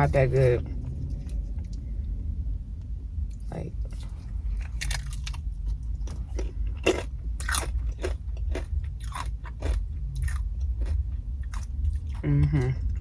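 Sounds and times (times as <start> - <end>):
steady low hum: 0.0 - 13.0
crunching and chewing fried food: 3.9 - 13.0.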